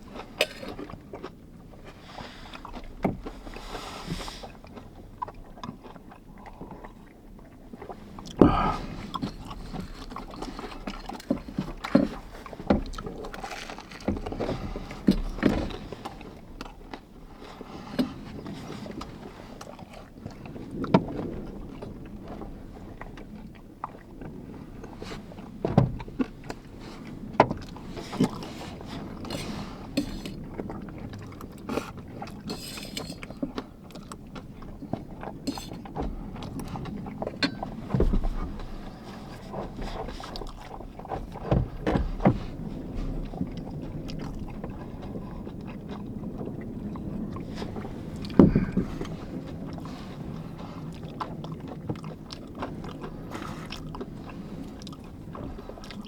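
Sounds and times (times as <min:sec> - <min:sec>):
strong wind buffeting van: 0:07.8 - 0:16.6, 0:33.2 - 0:56.0.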